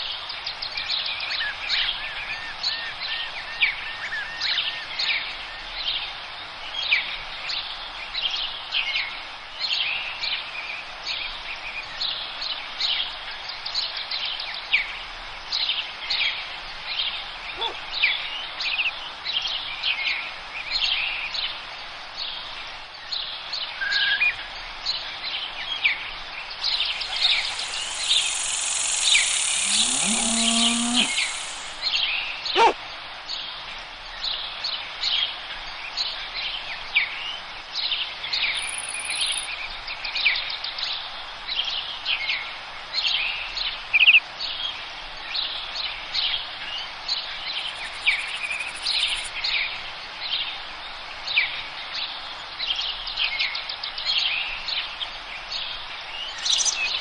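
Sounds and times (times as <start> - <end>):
steady background hiss: 0.0 - 57.0
songbirds chirping: 15.5 - 42.4, 43.0 - 57.0
higher even hiss: 26.6 - 31.9
bird warbling trill: 26.7 - 31.8.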